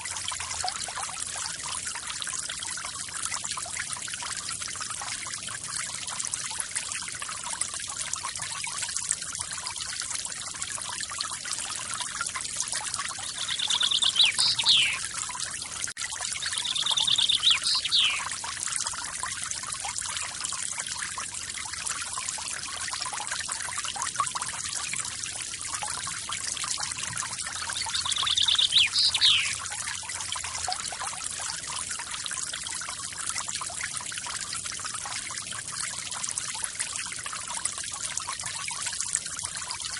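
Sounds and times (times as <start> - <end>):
small waterfall splashing: 0.0 - 39.9
bird trilling call: 13.3 - 15.0, 16.4 - 18.3, 27.6 - 29.6.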